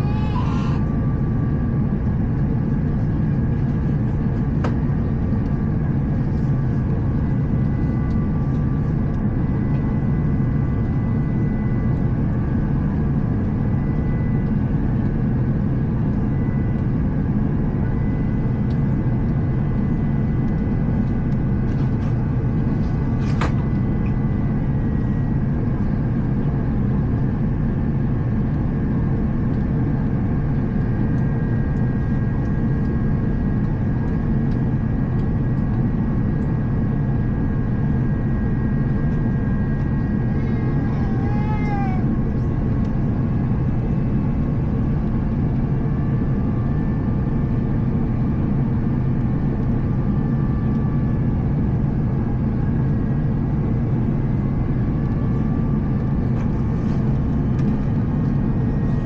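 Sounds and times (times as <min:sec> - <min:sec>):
airplane cabin rumble: 0:00.0 - 0:59.0.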